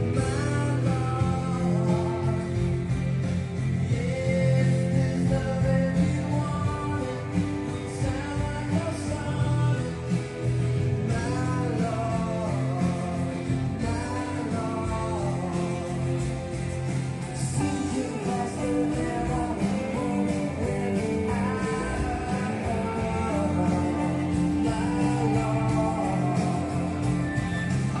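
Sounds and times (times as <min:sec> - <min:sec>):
song with singing and guitar: 0:00.0 - 0:28.0.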